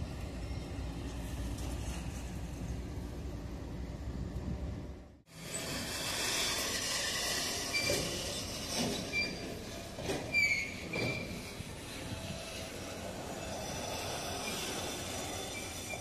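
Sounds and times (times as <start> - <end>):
diesel locomotive rumble: 0.0 - 16.0
steel wheels squealing: 5.3 - 16.0
wheels hissing on track: 5.3 - 16.0
train clanks: 5.4 - 16.0.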